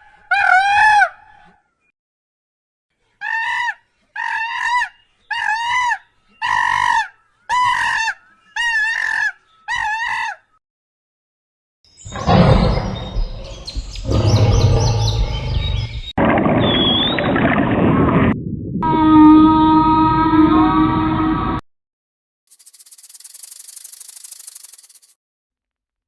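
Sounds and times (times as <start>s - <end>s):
rising and falling animal calls: 12.0s - 17.6s.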